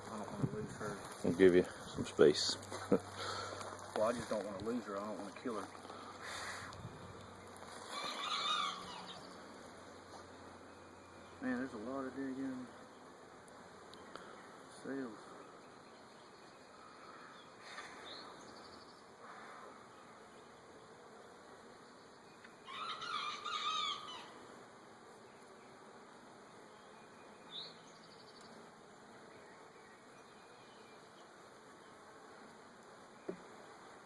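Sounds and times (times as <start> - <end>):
honey bees buzzing: 0.0 - 34.0
bird calling loudly: 7.9 - 9.3, 22.7 - 24.4.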